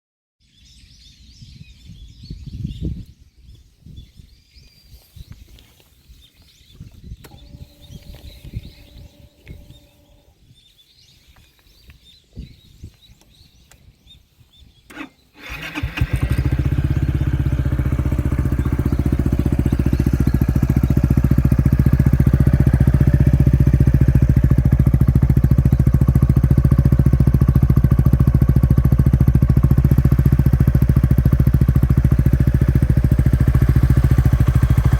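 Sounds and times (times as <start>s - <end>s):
scooter engine starting and idling: 7.2s - 10.3s, 14.9s - 34.9s.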